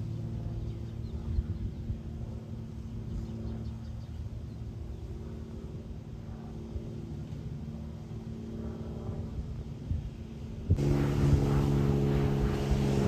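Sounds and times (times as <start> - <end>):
engine drone: 0.0 - 13.0
low rumble: 10.7 - 13.0.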